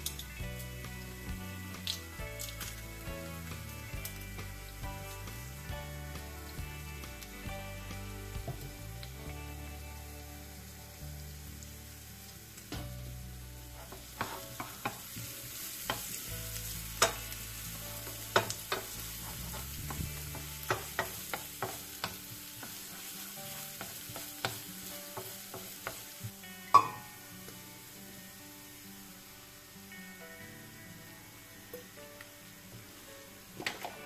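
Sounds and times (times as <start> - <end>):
onion sizzling in oil: 0.0 - 34.0
wooden spoon scraping a pan: 13.6 - 26.2.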